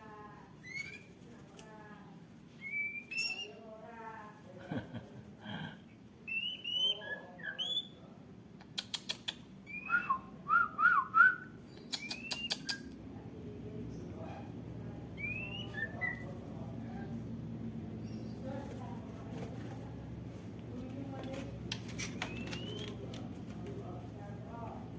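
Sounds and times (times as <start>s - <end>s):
bird singing whistled phrases: 2.6s - 3.6s, 6.3s - 8.0s, 9.7s - 12.9s, 15.2s - 16.2s, 22.3s - 23.0s
sharp clicks: 11.8s - 13.0s.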